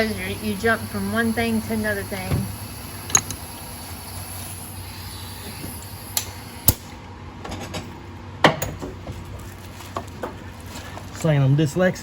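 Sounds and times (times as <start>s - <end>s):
metal tools clinking: 3.1s - 3.4s.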